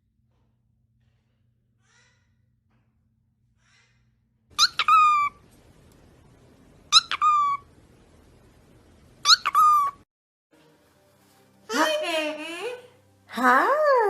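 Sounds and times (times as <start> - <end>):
parrot calling: 4.5 - 5.6, 6.8 - 7.8, 9.2 - 10.0.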